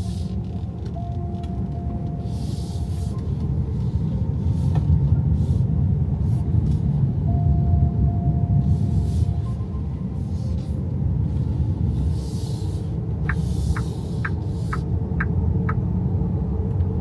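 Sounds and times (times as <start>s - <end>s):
road and tyre rumble: 0.0s - 17.0s
hiss: 12.1s - 14.8s.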